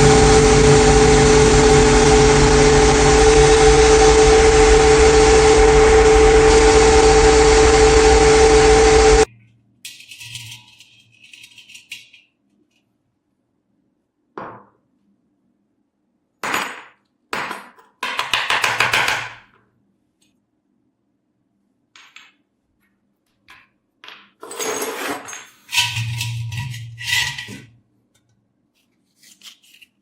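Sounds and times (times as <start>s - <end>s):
tool scraping metal: 9.9s - 12.2s, 24.4s - 27.8s.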